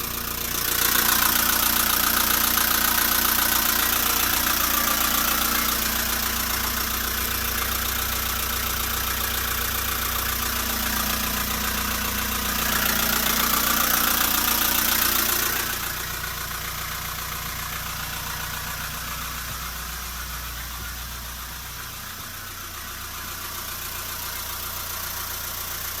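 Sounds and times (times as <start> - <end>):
diesel bus engine idling: 0.0 - 26.0.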